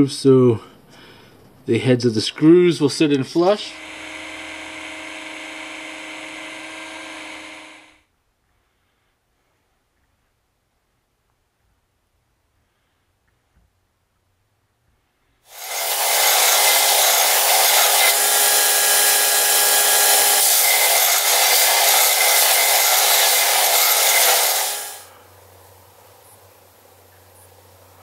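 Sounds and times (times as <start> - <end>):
belt sander grinding metal: 3.1 - 8.0, 15.5 - 25.1.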